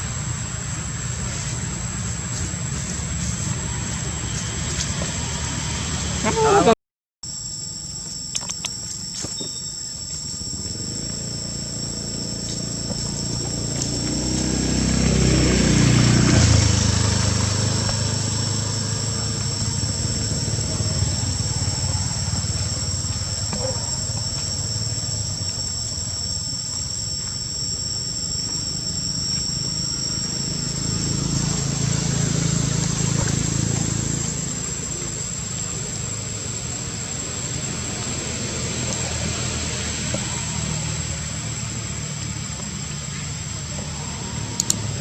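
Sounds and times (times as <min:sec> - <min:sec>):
insects droning: 0:00.0 - 0:45.0
motor vehicle passing: 0:10.6 - 0:25.9, 0:28.7 - 0:45.0.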